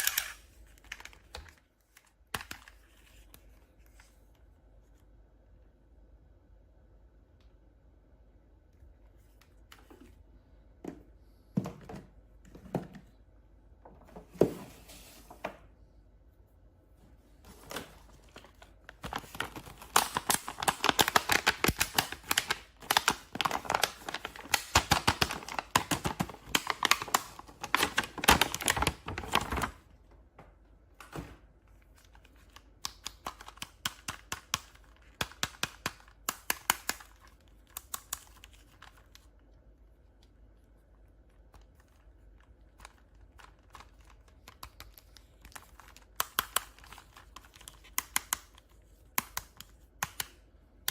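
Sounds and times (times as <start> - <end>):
plastic and card crinkling: 0.0 - 5.1, 17.4 - 29.9, 31.7 - 50.4.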